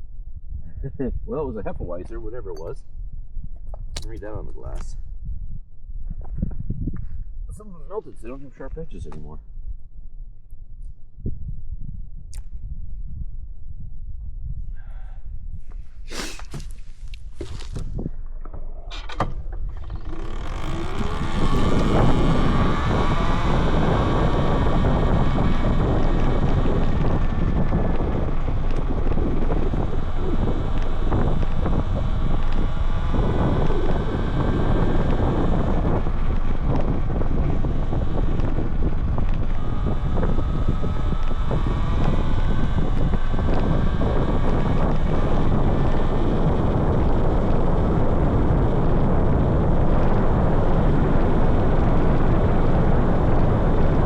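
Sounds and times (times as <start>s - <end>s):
wind and tyre noise: 0.0s - 54.0s
sharp clicks and knocks: 3.6s - 4.9s, 17.4s - 22.7s
small rattles and clicks: 17.4s - 47.9s
electric motor whine: 19.0s - 54.0s.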